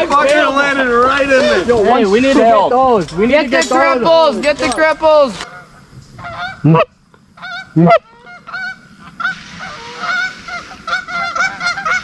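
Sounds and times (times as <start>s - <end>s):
geese honking: 5.3s - 12.0s.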